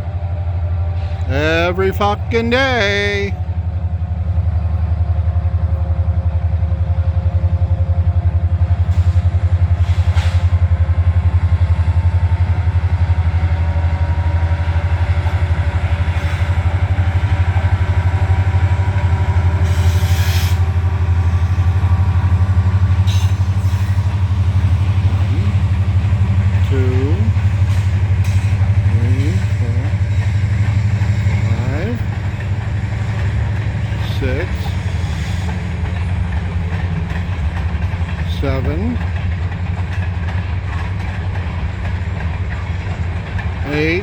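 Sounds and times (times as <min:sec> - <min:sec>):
freight train passing: 0:00.0 - 0:44.0.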